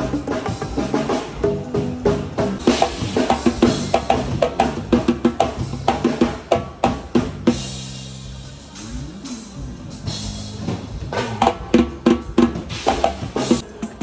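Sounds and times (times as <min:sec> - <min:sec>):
drums and hand percussion: 0:00.0 - 0:14.0
sustained low notes: 0:07.1 - 0:12.1.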